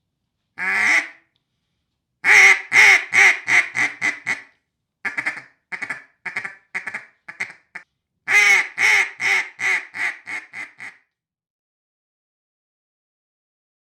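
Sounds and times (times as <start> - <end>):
duck call quacks: 0.6 - 1.2, 2.2 - 4.5, 5.1 - 11.0.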